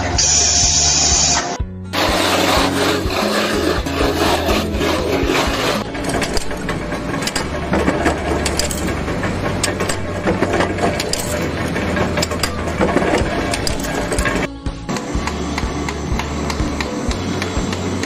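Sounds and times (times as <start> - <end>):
rough rasping and scraping: 1.9 - 14.5.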